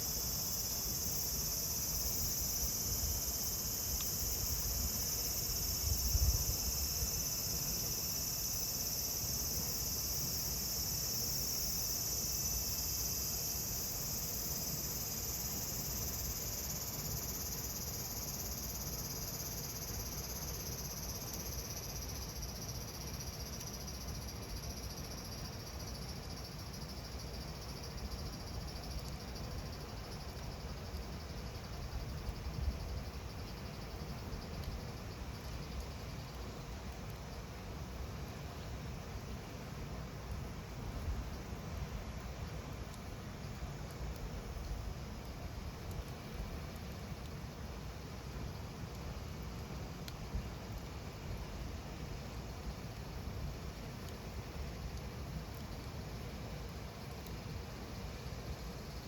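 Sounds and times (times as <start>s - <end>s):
cicadas buzzing: 0.0s - 34.9s
wood fire burning: 33.0s - 59.0s.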